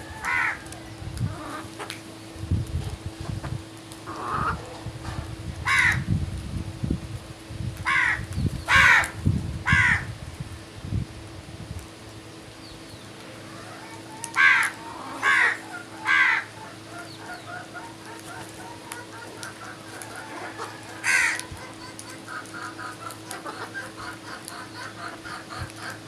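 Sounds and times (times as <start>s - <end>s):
crow cawing: 0.2s - 0.6s, 5.7s - 6.0s, 7.9s - 9.1s, 9.7s - 10.1s, 14.3s - 16.8s, 20.3s - 26.0s
birds chattering: 12.2s - 26.0s.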